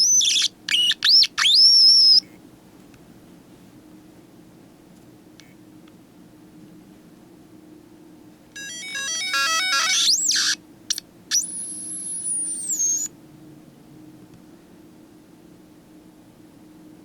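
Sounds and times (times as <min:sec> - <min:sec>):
hard disk electronic beeping and whine: 0:08.6 - 0:10.6, 0:11.3 - 0:13.1.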